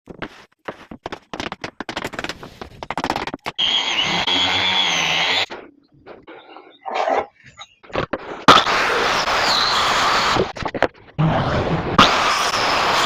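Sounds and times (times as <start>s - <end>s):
knocks and scrapes on wood: 0.1s - 3.6s
power tool running: 3.6s - 5.5s.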